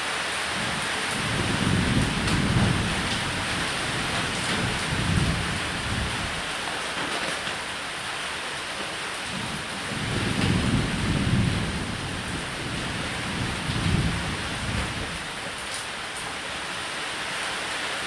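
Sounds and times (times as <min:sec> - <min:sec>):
rain on a roof: 0:00.0 - 0:18.0
low thunder rumbling: 0:00.6 - 0:06.7, 0:09.3 - 0:15.6.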